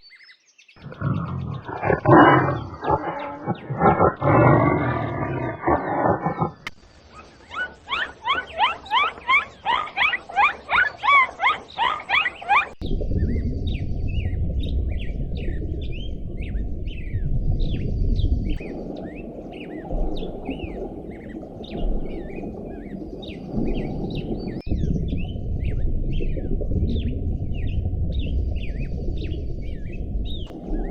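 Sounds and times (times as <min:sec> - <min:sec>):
small birds chirping: 0:00.0 - 0:30.9
steady low rumble: 0:12.8 - 0:18.8, 0:24.6 - 0:30.9.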